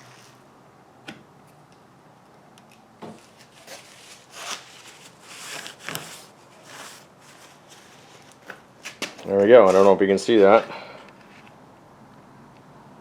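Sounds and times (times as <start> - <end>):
hands rubbing and scraping plastic: 3.2 - 10.1.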